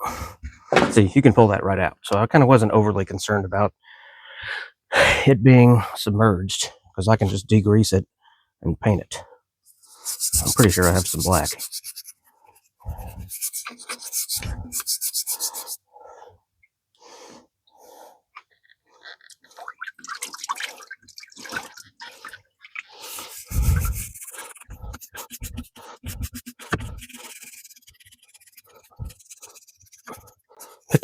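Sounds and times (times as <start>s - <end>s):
stiff brush scrubbing metal: 9.8s - 15.8s, 22.9s - 31.0s
scraping and handling noises: 22.7s - 31.0s.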